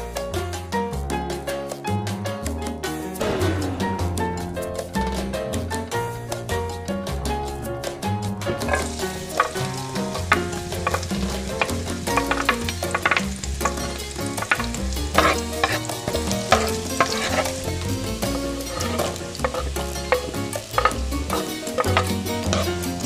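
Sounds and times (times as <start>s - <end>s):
background music with bass: 0.0s - 23.0s
garlic and onion sizzling in oil: 4.0s - 23.0s
wooden spoon tapping pan: 8.5s - 23.0s.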